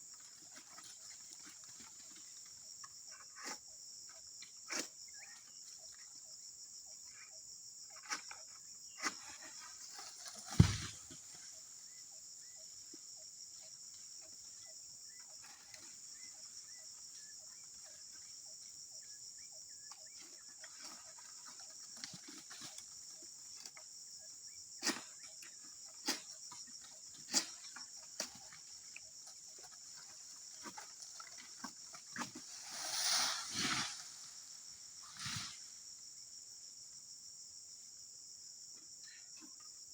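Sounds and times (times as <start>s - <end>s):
insects chirring: 0.0s - 39.9s
rustling: 9.9s - 11.4s
loud thud: 10.5s - 11.2s.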